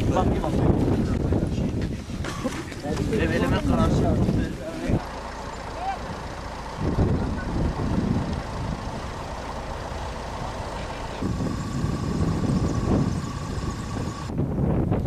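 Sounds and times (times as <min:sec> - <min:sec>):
vehicle engine rumble: 0:00.0 - 0:15.0
thin steady whine: 0:05.0 - 0:14.4.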